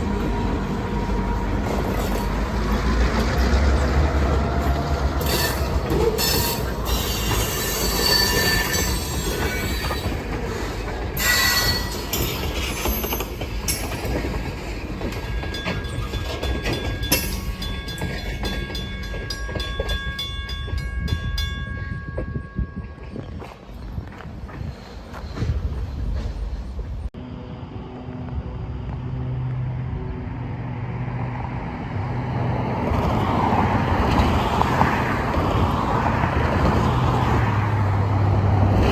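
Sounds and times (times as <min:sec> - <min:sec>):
squealing train wheels: 0:00.0 - 0:27.0
freight train rumble: 0:00.0 - 0:38.9
wheels clicking over rail joints: 0:01.2 - 0:27.1.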